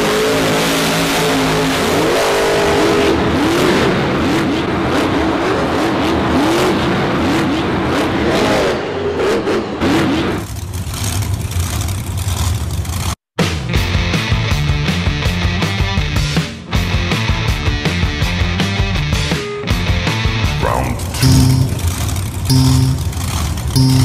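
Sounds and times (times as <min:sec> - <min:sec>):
race car engine revving: 0:00.0 - 0:13.2, 0:21.0 - 0:24.0.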